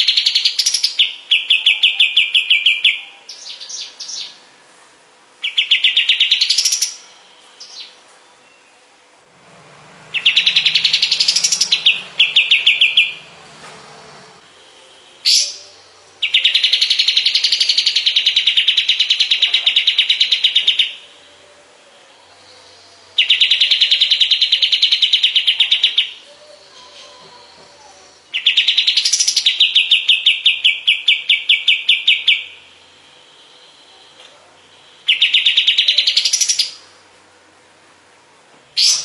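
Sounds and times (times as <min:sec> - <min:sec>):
bird trilling: 0:10.0 - 0:36.9, 0:38.8 - 0:39.0.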